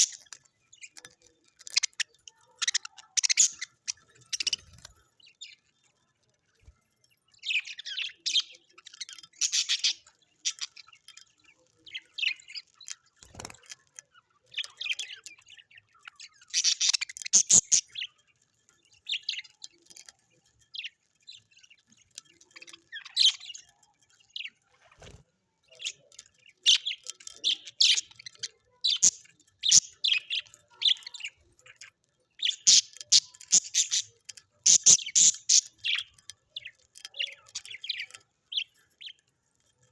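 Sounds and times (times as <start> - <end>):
parrots chirping and twittering: 0.0 - 39.9.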